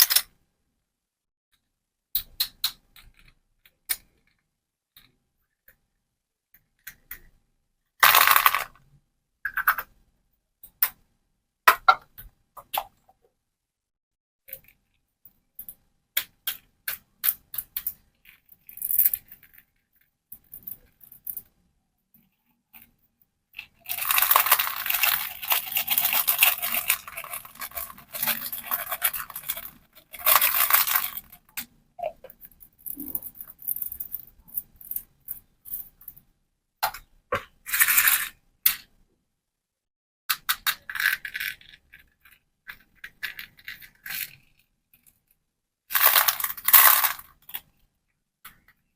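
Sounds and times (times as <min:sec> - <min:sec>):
plastic crinkling and tearing: 0:23.8 - 0:31.3.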